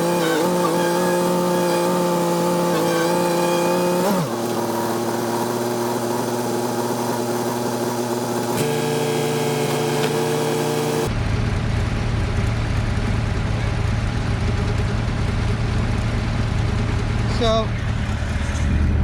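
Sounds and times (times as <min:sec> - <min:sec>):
diesel engine running: 0:00.0 - 0:19.0
deep heavy hum: 0:11.1 - 0:19.0.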